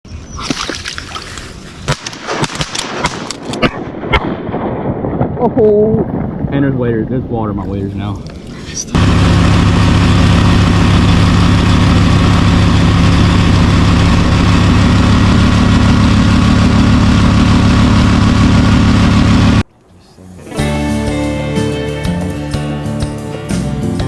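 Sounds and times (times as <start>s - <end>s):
outboard motor running: 9.0s - 19.6s.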